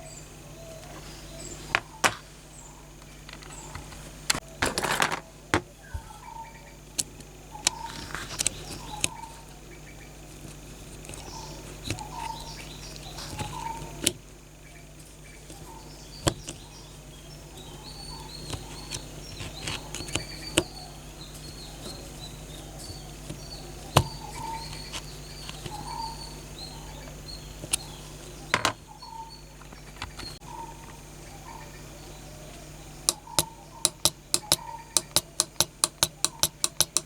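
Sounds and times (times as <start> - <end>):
small birds chirping: 0.0 - 4.6, 5.2 - 37.0
clicks and taps on metal toy car: 33.1 - 37.0.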